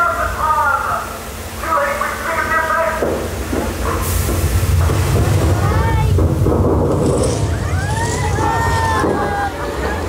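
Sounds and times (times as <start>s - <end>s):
ride rumbling low: 3.5s - 10.0s.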